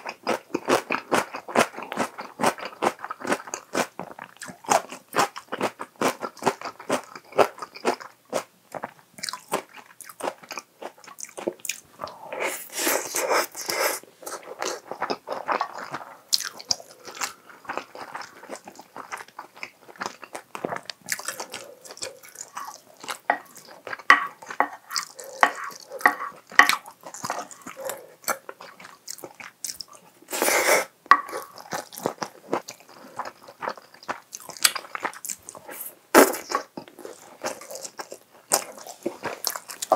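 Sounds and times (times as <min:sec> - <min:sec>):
close chewing with wet smacking: 0:00.0 - 0:12.2, 0:13.6 - 0:30.2, 0:31.1 - 0:35.7, 0:36.4 - 0:39.9
spoon scraping a plate: 0:23.3 - 0:26.8, 0:30.4 - 0:31.6.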